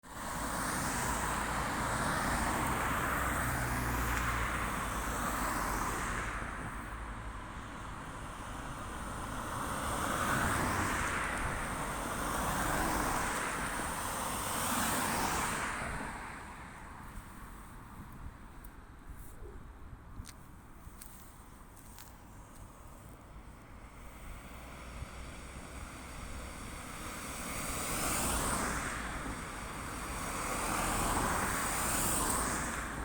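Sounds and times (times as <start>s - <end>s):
vehicles passing close by: 0.1s - 33.0s.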